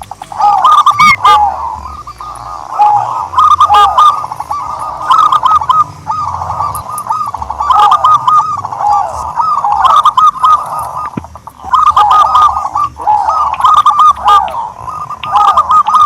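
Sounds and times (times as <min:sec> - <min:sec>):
dove cooing: 0:00.0 - 0:16.0.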